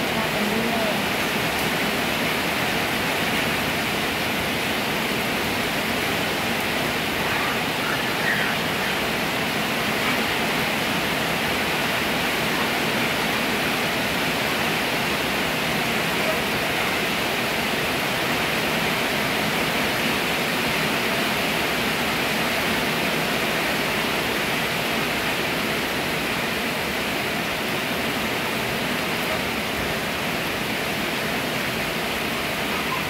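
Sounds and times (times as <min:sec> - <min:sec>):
rain falling: 0:00.0 - 0:33.0.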